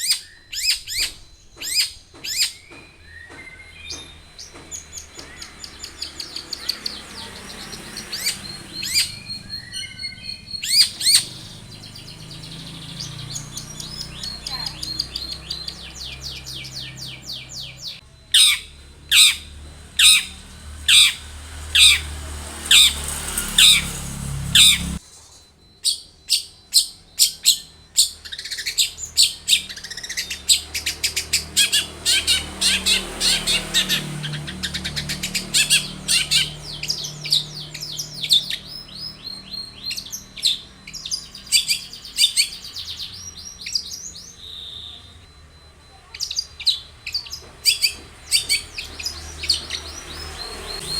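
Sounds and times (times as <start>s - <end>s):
bird singing sharp notes: 0.0s - 50.9s
bird chattering quick notes: 22.7s - 25.0s.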